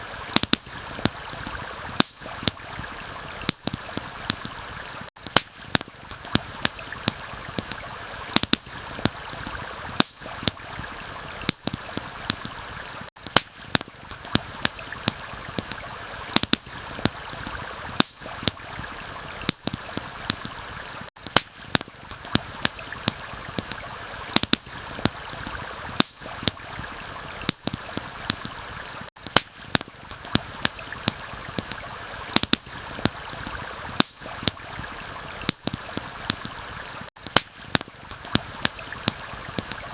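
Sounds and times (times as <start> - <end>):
campfire crackling: 0.0 - 39.9
stream water rushing: 0.0 - 39.9.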